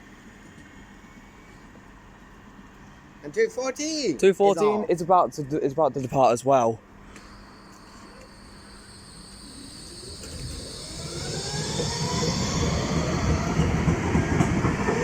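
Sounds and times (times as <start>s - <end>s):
tram motor whine: 6.8s - 15.0s
wheels rumbling on rail: 7.8s - 15.0s.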